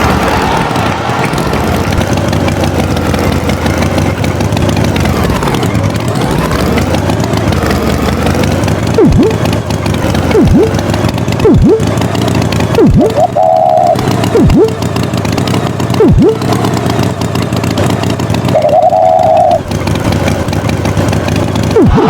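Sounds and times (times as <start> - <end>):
cartoon tractor engine: 0.0 - 22.0
quick pitch sweeps: 9.0 - 9.4, 10.3 - 10.8, 11.4 - 11.9, 12.8 - 14.8, 16.0 - 16.4, 21.8 - 22.0.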